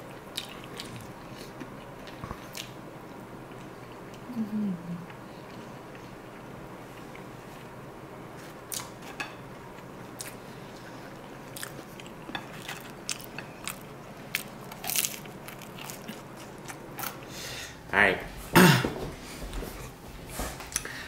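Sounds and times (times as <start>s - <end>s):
person chewing crunchy food: 0.1s - 2.8s, 9.8s - 17.3s.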